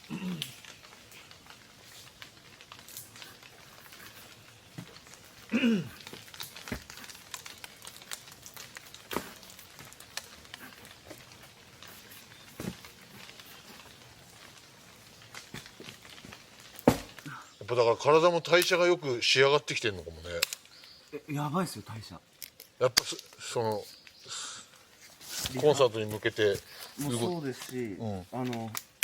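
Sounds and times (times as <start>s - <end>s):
sharp clicks and pops: 0.0s - 17.4s, 20.2s - 21.2s, 22.3s - 24.2s, 28.4s - 29.0s
campfire crackling: 0.0s - 29.0s
rain pattering on a tarp: 0.0s - 29.0s.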